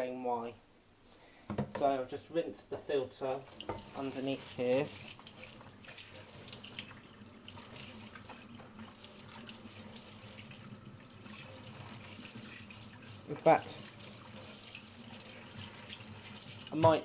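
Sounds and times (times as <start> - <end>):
tap water running into sink: 3.3 - 17.0
small water splashes: 3.4 - 17.0.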